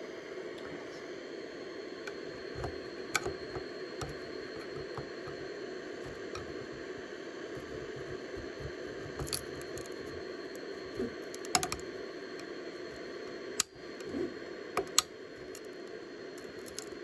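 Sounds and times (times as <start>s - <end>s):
steady hum: 0.0s - 17.0s
clicks and knocks of plastic print: 2.1s - 10.2s.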